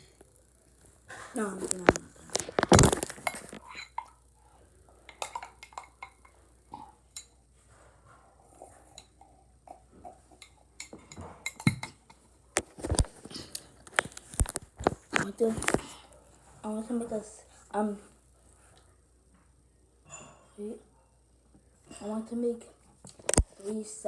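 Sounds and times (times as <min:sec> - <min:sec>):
dishes and utensils clinking: 0:05.1 - 0:07.4, 0:08.6 - 0:13.1.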